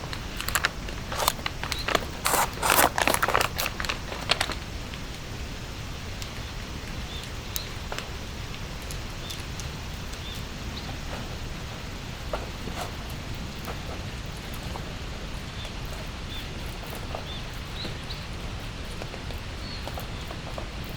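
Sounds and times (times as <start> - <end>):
crunching rustling clicks: 0.0 - 5.0
light rain: 0.0 - 20.9.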